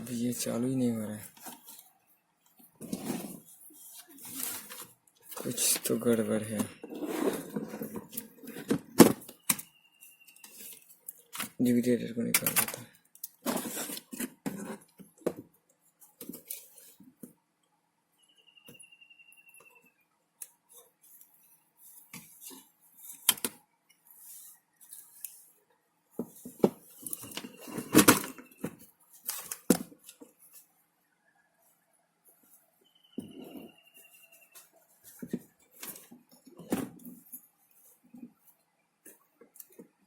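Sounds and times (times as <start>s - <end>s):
plastic and metal parts clicking: 12.2s - 13.4s.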